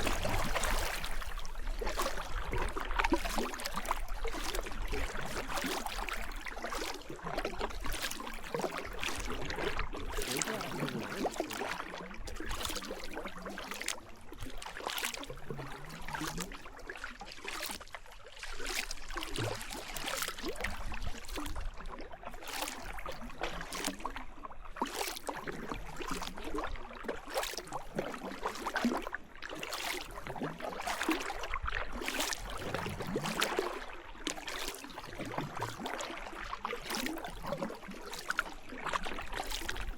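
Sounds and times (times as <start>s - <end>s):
paddle splashing in water: 0.0s - 39.9s
rushing water: 0.0s - 39.9s.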